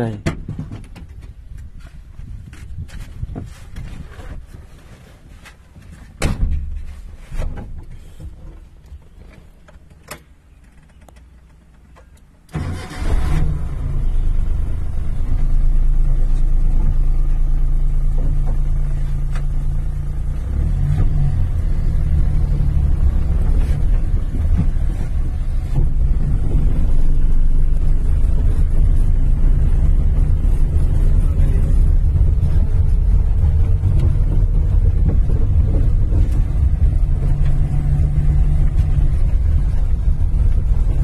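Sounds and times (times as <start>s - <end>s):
knocks and clicks inside car: 0.2s - 1.4s, 23.3s - 26.9s, 31.8s - 41.0s
car engine starting and running: 6.2s - 41.0s.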